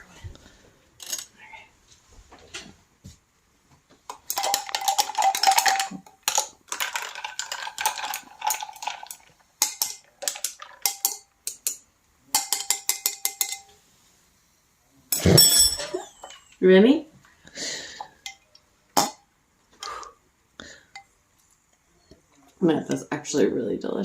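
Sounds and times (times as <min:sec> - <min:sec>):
metal utensil clinking on glass: 0:04.3 - 0:13.8, 0:15.2 - 0:16.4.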